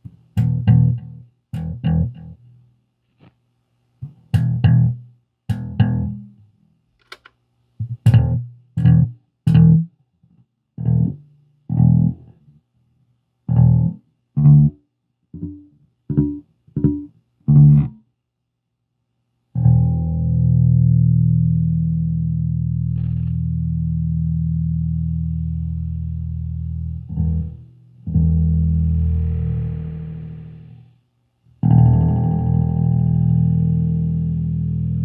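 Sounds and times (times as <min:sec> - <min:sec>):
bass guitar notes with delay: 0:19.6 - 0:30.8, 0:31.6 - 0:35.0.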